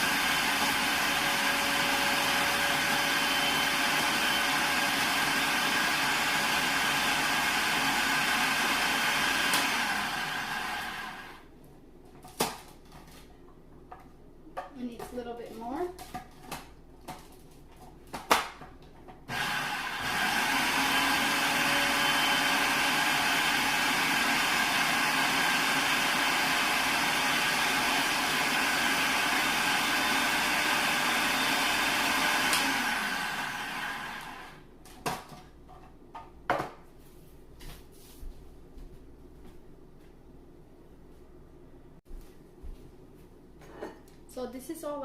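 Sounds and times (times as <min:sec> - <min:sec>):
food processor motor whining: 0:00.0 - 0:11.4, 0:19.3 - 0:34.6.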